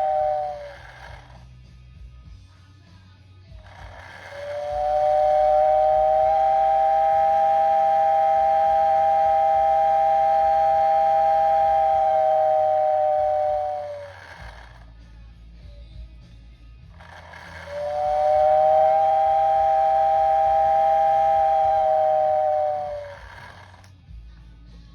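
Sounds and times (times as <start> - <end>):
steel mill whistle blast: 0.0 - 1.4, 3.7 - 14.8, 17.0 - 23.9.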